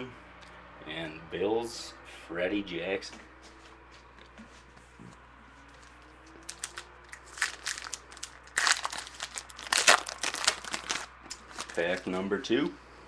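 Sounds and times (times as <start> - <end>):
foil wrapper crinkling: 5.8 - 12.1.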